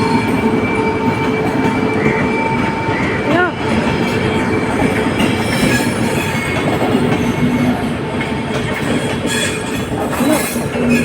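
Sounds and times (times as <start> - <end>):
wheels squealing: 0.0 - 7.8, 8.6 - 11.0
train wheels rumbling on rails: 0.0 - 11.0.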